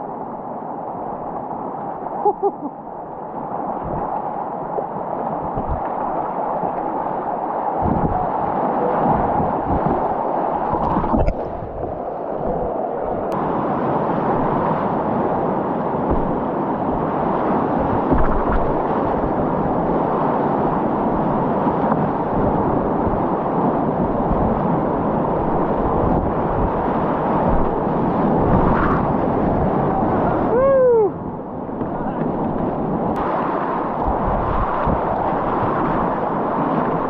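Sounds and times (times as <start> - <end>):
wind buffeting microphone: 3.8 - 4.1, 5.4 - 37.0
river whitewater rushing: 33.2 - 37.0.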